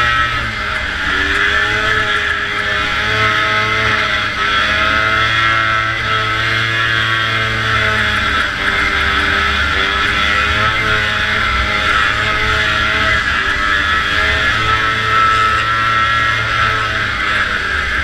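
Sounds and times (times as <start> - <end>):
two-stroke engine revving high: 0.0 - 18.0.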